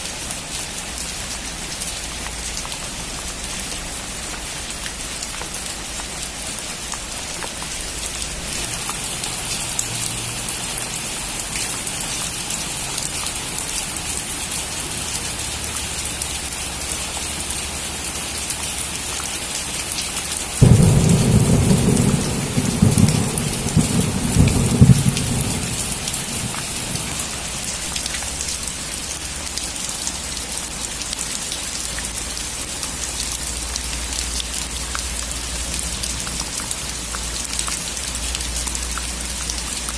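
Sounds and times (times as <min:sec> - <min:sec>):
steady rain: 0:00.0 - 0:39.9
thunder rumbling: 0:20.6 - 0:28.2.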